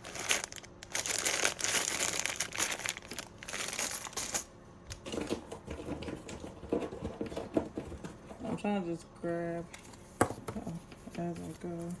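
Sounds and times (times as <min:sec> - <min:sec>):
plastic packaging crinkling: 0:00.0 - 0:04.5.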